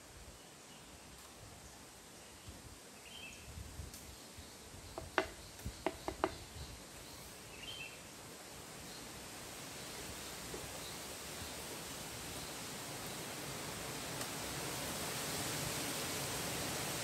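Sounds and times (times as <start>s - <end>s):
wind rumbling on microphone: 2.5s - 6.9s
sharp knocks: 5.0s - 6.4s.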